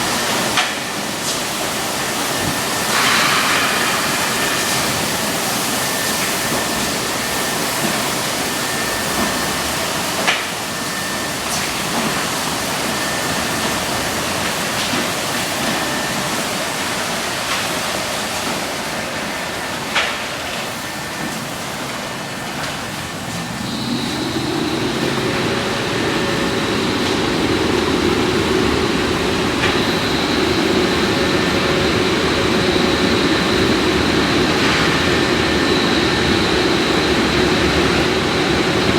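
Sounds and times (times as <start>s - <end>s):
air-dryer blowers droning: 0.0s - 38.9s
water spray hissing on car: 1.2s - 10.1s.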